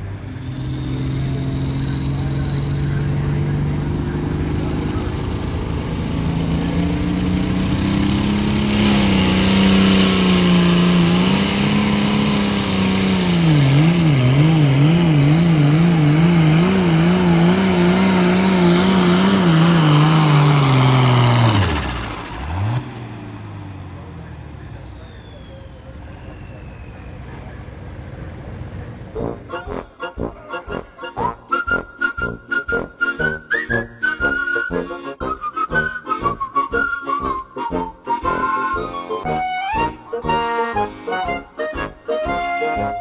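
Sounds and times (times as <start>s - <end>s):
tractor engine under load: 0.0s - 29.5s, 30.4s - 43.0s.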